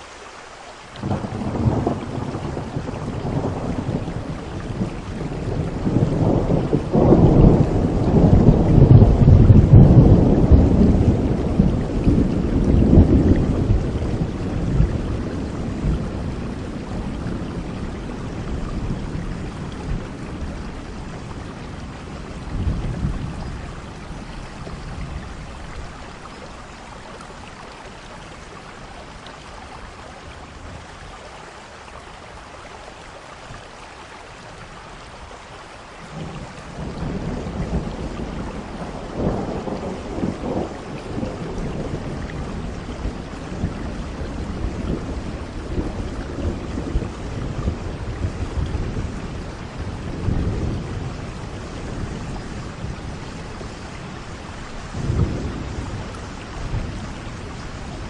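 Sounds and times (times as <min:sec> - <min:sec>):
heavy rain: 0:00.0 - 0:58.0
thunder rolling: 0:01.0 - 0:26.5, 0:36.2 - 0:58.0.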